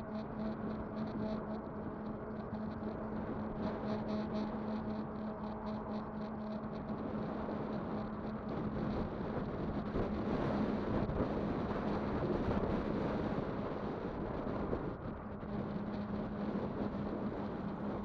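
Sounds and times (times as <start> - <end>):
electric bike rolling noise: 0.0 - 18.0
steady low hum: 0.0 - 18.0
wind buffeting microphone: 5.9 - 18.0.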